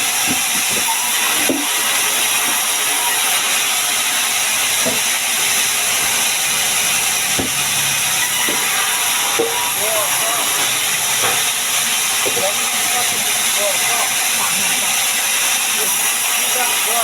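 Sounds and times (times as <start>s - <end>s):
sawmill machinery hissing: 0.0s - 17.0s.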